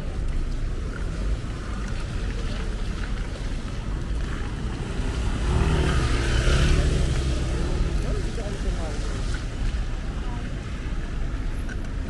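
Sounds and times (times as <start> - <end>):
rain: 0.0 - 12.0
traffic rumble: 0.0 - 12.0
vehicle passing: 3.9 - 9.3.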